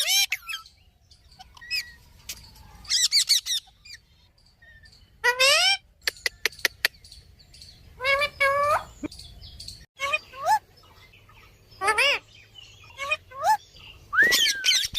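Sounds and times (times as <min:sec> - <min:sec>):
parrot squawking: 0:00.0 - 0:00.7, 0:02.9 - 0:04.0, 0:05.2 - 0:06.5, 0:08.0 - 0:09.0, 0:11.8 - 0:12.2, 0:12.8 - 0:13.6, 0:14.3 - 0:14.9.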